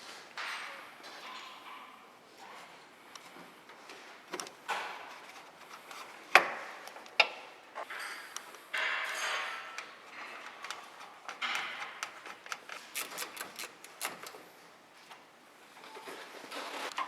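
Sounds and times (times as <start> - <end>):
rustling noise: 15.0 - 17.0.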